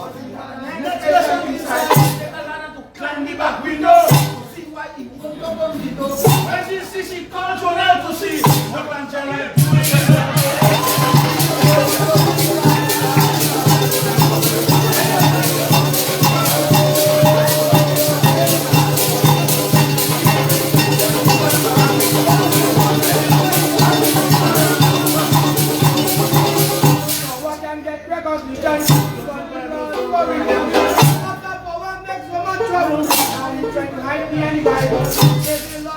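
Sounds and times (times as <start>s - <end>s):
shakers rhythm: 1.7s - 2.4s, 4.0s - 4.6s, 6.1s - 6.7s, 8.2s - 8.9s, 9.5s - 27.6s, 28.8s - 29.4s, 30.4s - 31.4s, 33.0s - 33.7s, 34.6s - 35.9s
band playing instrumental music: 9.6s - 27.5s.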